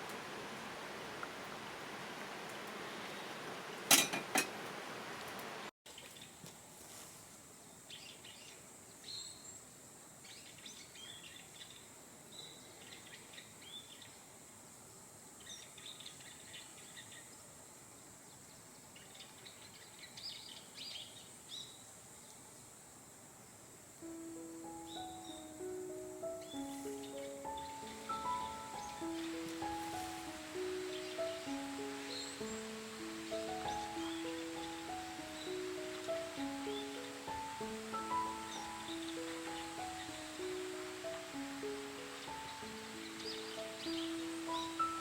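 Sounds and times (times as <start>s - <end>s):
bird chirps: 24.6s - 29.9s, 30.6s - 32.7s, 42.0s - 45.0s.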